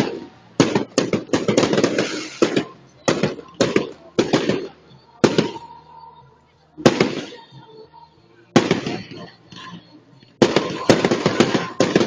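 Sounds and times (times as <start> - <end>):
fireworks shells bursting: 0.0 - 5.9, 8.6 - 12.0.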